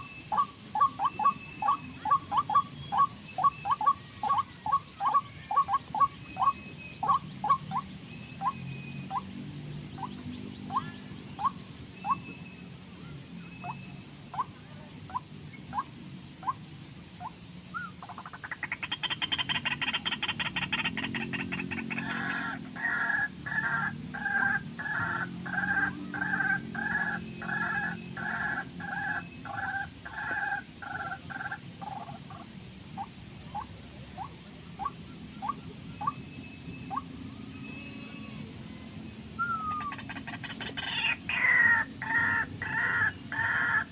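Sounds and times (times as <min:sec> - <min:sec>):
bird buzzy trill: 0:00.0 - 0:09.4
bird two-tone croaking notes: 0:00.0 - 0:43.9
faint high whine: 0:19.7 - 0:43.9.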